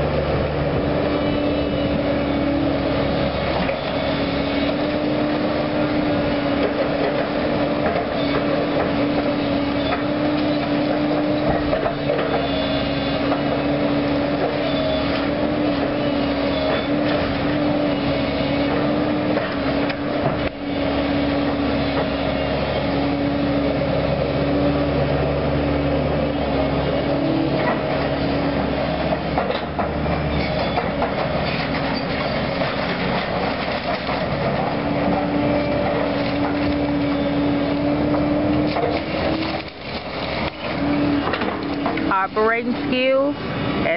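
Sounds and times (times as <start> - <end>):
diesel engine and hydraulics whine: 0.0 - 43.9
debris knocks and clanks: 29.1 - 34.7.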